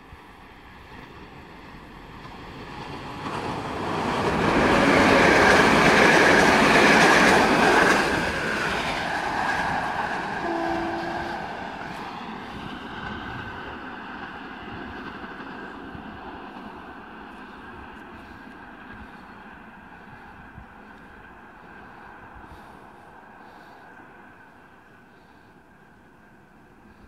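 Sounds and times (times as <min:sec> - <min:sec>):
passenger train passing: 0:00.0 - 0:27.0
brief steady tone: 0:10.4 - 0:11.5.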